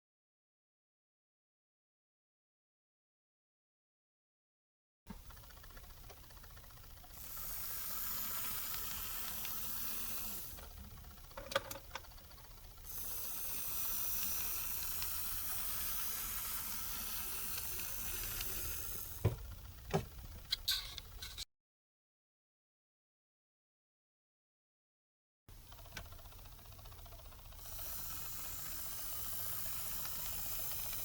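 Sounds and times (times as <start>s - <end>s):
model train motor whirring: 5.1s - 21.4s, 25.5s - 31.0s.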